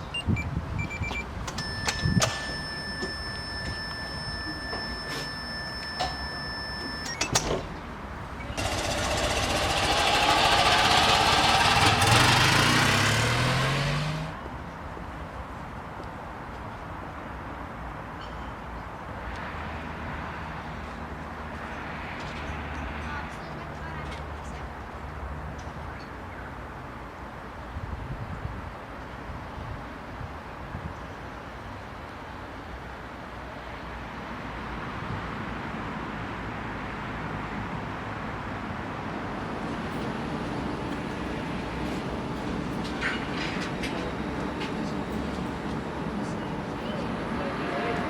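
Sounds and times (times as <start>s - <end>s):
cars going by: 0.0s - 15.3s, 19.0s - 25.9s, 32.7s - 48.0s
urban traffic noise: 0.0s - 48.0s
vehicle approaching: 7.8s - 14.4s, 36.6s - 48.0s.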